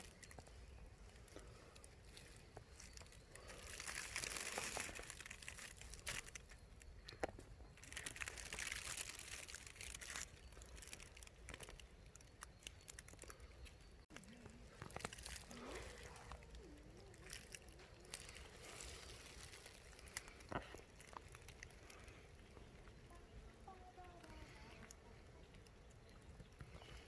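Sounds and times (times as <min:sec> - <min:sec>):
rustling and crinkling: 0:00.0 - 0:27.0.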